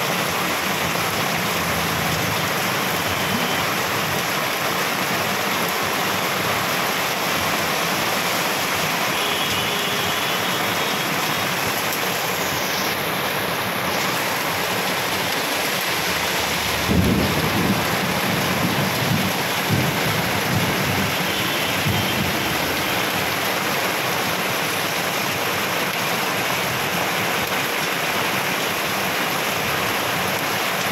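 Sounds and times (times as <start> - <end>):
heavy rain pouring: 0.0 - 30.9
low thunder rumble: 16.6 - 21.2.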